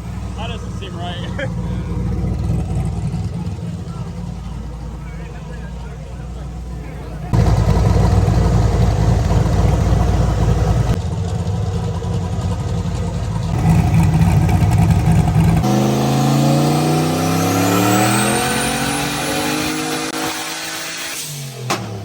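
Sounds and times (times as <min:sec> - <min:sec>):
car engine revving on dyno: 0:13.5 - 0:22.0.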